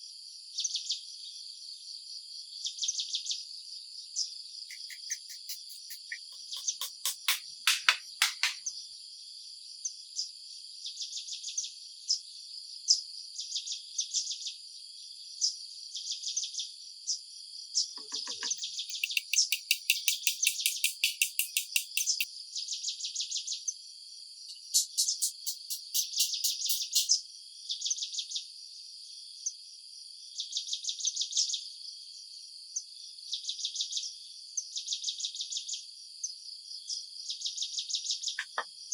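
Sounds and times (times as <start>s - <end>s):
insects buzzing: 4.7s - 8.6s, 18.1s - 22.3s, 24.5s - 27.2s
insects pulsed chirps: 4.7s - 8.6s, 18.1s - 22.3s, 24.5s - 27.2s.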